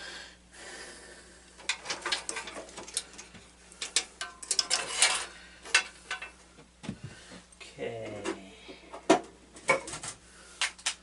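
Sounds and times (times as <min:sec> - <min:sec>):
metal parts and tools clinking: 0:01.6 - 0:06.4.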